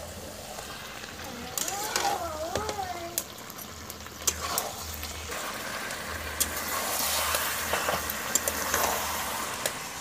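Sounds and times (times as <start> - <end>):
curry sizzling: 0.0 - 10.0
metal spatula stirring and scraping: 4.1 - 9.6.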